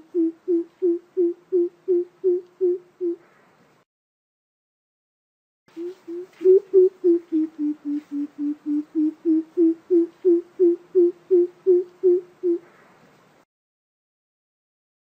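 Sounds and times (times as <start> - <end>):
bird deep hooting: 0.0 - 3.3, 5.8 - 12.8.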